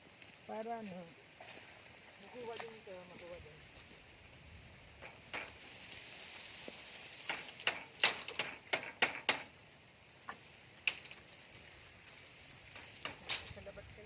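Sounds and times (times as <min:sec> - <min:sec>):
steady high hiss: 0:00.0 - 0:14.0
sharp knocks: 0:07.2 - 0:09.6.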